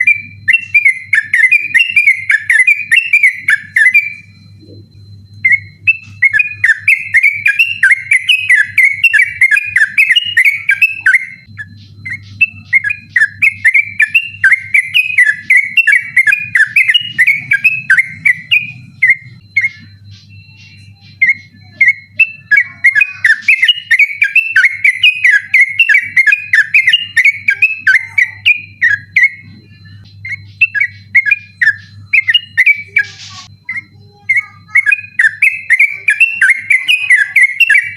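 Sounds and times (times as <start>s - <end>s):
bulbul warbling song: 0.0s - 37.9s
faint steady hum: 0.0s - 37.9s.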